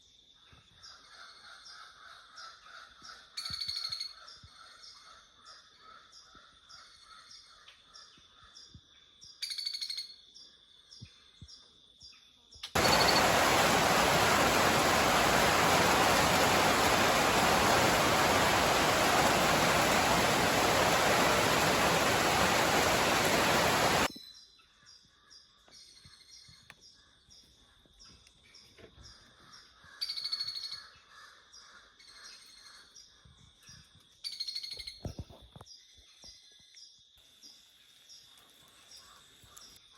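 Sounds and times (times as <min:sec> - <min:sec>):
birds chirping: 0:12.8 - 0:24.1
loud even rushing noise: 0:12.8 - 0:24.1.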